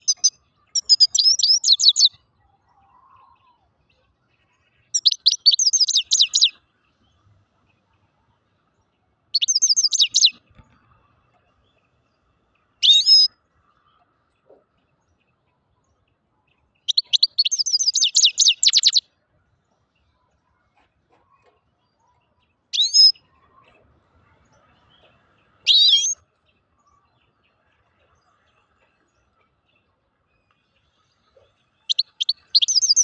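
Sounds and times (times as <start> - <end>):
goldfinch twittering song: 0.0 - 2.2, 4.4 - 7.0, 9.3 - 14.0, 16.8 - 19.0, 22.7 - 23.3, 24.5 - 33.0.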